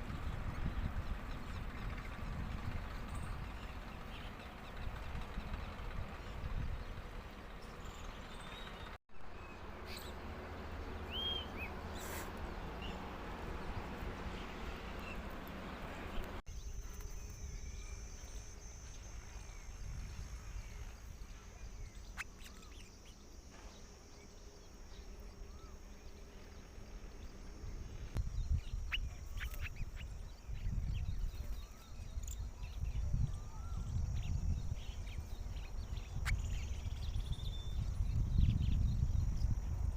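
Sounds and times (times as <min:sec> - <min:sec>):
wind rumble on microphone: 0:00.0 - 0:09.0, 0:12.4 - 0:22.7, 0:24.4 - 0:39.9
bird chirps: 0:07.3 - 0:13.1, 0:16.1 - 0:27.6, 0:28.2 - 0:39.7.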